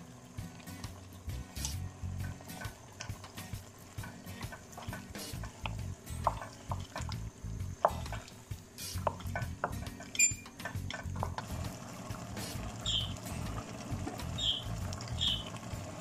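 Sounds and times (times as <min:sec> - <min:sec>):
spoon stirring in a pot: 0:02.3 - 0:07.2
spoon knocking against pot: 0:06.2 - 0:07.1.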